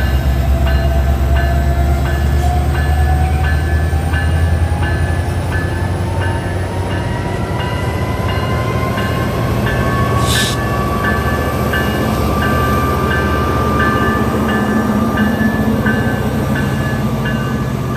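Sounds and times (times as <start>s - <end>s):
diesel train engine rumble and whine: 0.0s - 17.9s
train bell dinging: 0.0s - 17.9s
burst of hiss: 10.2s - 10.6s.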